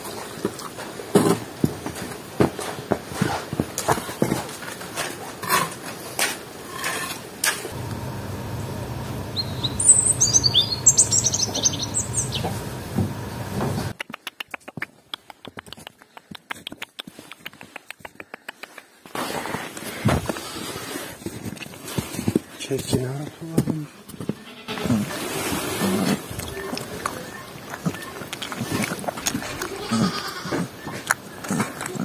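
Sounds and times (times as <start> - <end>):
steady low rumble: 7.7 - 13.9
small birds chirping: 7.8 - 13.9, 26.4 - 29.8.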